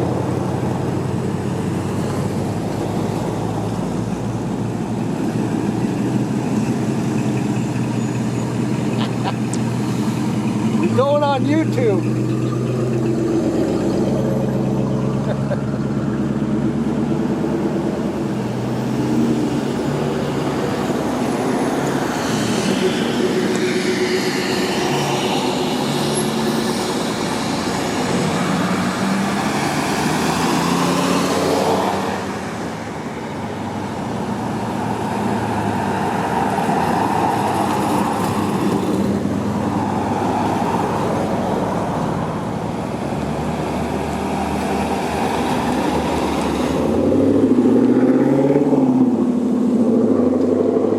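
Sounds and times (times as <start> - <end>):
car engines idling: 0.0 - 26.0, 32.0 - 47.9.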